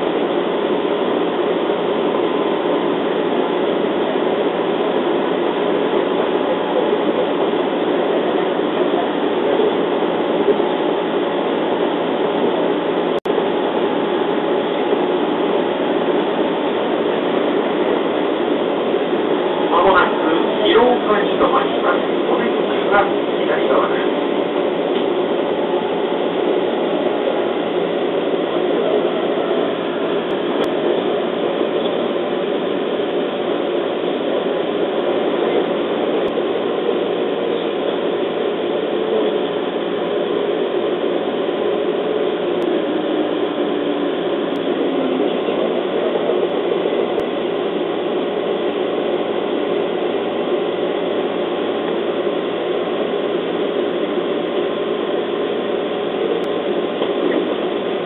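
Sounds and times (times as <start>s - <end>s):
train motor whine: 13.8s - 40.6s.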